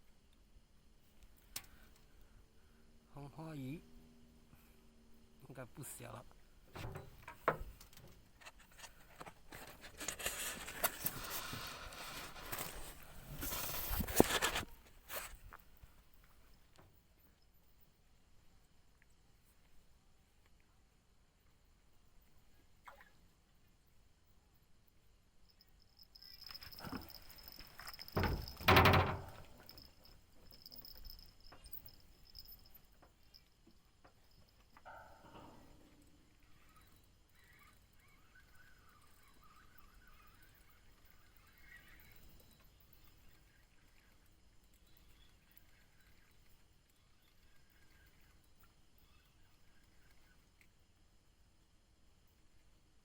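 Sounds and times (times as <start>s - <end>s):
knock and scrape: 6.7s - 7.8s, 28.1s - 29.6s
high-pitched insect trill: 25.0s - 34.9s, 36.0s - 50.5s
hands handling fishing gear: 26.4s - 30.1s.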